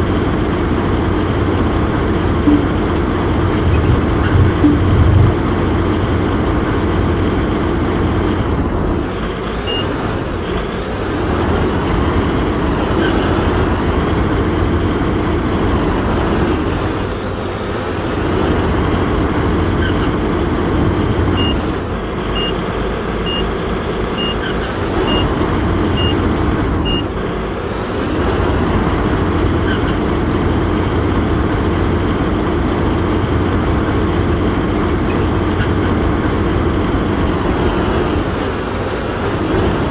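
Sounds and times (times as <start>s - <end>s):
excavator engine running: 0.0s - 39.9s
short high beeps: 2.5s - 5.6s, 23.3s - 23.5s.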